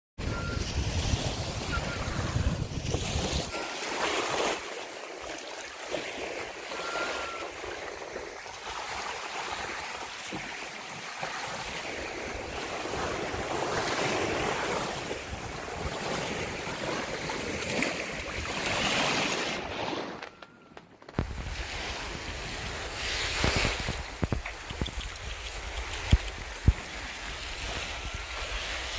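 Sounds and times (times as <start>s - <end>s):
wind buffeting microphone: 0.2s - 3.7s, 21.1s - 28.9s
sea water splashing: 0.2s - 20.6s, 21.2s - 28.9s.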